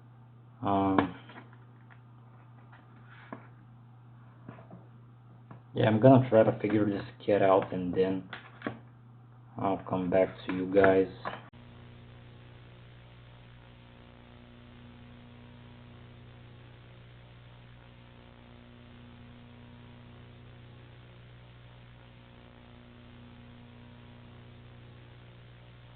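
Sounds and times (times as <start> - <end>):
low electrical hum: 0.0 - 25.9.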